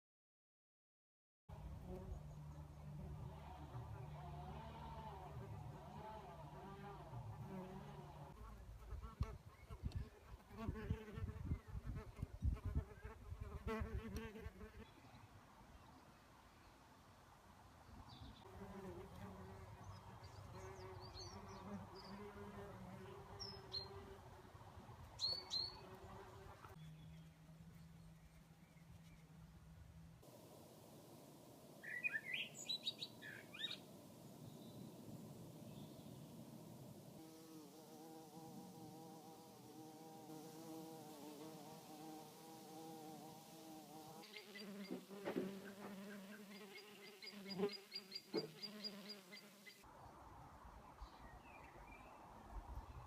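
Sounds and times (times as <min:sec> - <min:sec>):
small birds chirping: 0:25.2 - 0:29.4, 0:31.8 - 0:36.6, 0:44.1 - 0:49.8
bee wings buzzing: 0:37.0 - 0:49.8.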